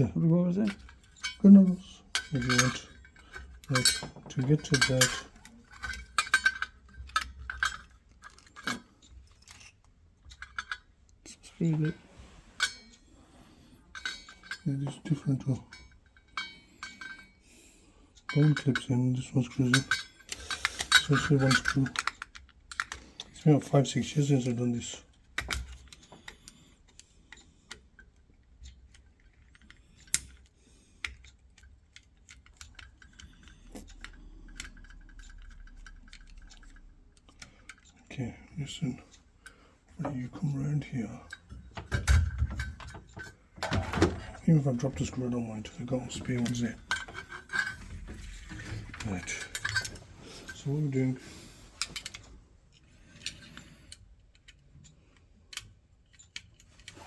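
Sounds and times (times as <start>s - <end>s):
small plastic and metal parts clicking: 0.6s - 11.2s, 18.2s - 57.0s.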